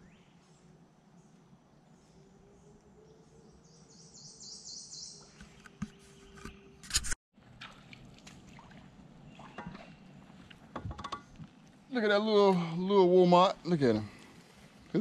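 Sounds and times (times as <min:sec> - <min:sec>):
bird chirping: 0:00.0 - 0:06.8.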